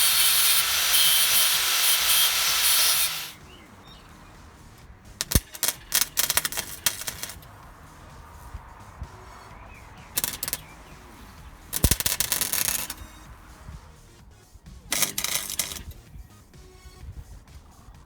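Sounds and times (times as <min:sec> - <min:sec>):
power tool harsh hiss: 0:00.0 - 0:03.4, 0:05.2 - 0:07.4, 0:10.2 - 0:10.7, 0:11.7 - 0:13.1, 0:14.9 - 0:16.0
sharp clicks and taps: 0:05.2 - 0:07.5, 0:10.2 - 0:10.9, 0:11.7 - 0:13.2.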